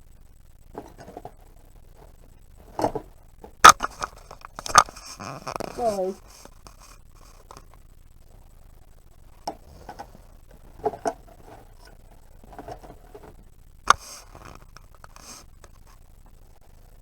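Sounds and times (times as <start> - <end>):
plastic clicks and knocks: 0.7 - 5.8, 9.4 - 15.8.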